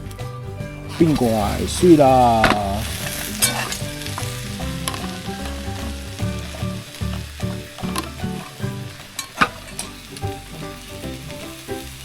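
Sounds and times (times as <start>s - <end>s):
background music: 0.0s - 12.0s
omelette sizzling in a pan: 0.9s - 12.0s
utensil clicking against pan: 2.4s - 10.4s.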